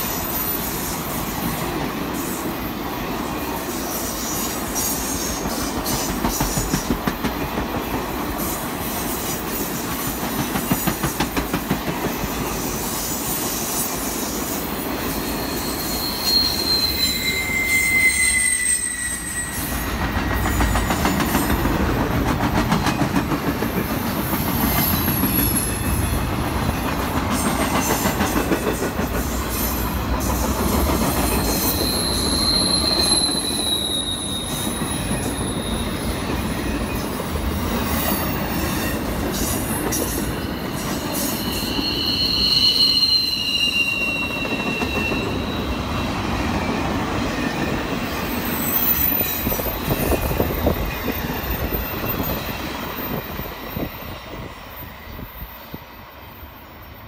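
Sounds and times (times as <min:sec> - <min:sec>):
train wheels rumbling on rail: 0:00.0 - 0:57.0
rhythmic clickety-clack: 0:04.8 - 0:12.6, 0:20.0 - 0:32.1
high-pitched wheel squeals: 0:15.1 - 0:21.4, 0:31.2 - 0:37.0, 0:37.9 - 0:52.4.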